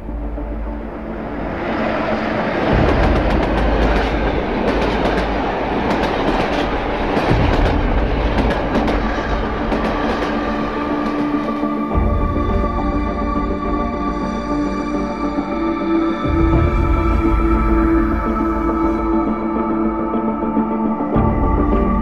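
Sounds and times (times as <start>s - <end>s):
wheels rumbling on rails: 0.0s - 14.4s
track clicks and clacks: 1.5s - 11.8s.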